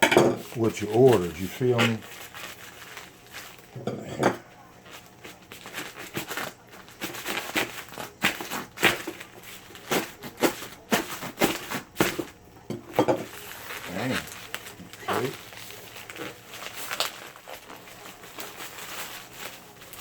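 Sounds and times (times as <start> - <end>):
packaging rustling: 0.4 - 3.8, 4.5 - 20.0
package cut and torn open: 5.6 - 12.3, 13.3 - 20.0.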